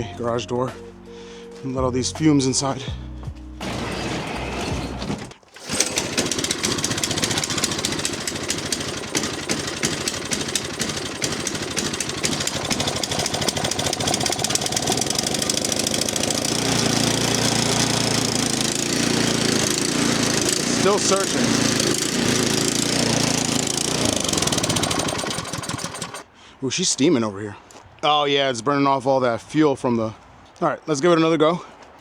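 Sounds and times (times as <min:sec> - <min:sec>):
pull-start cord: 0:03.6 - 0:26.3
snow blower engine surging: 0:03.6 - 0:26.3.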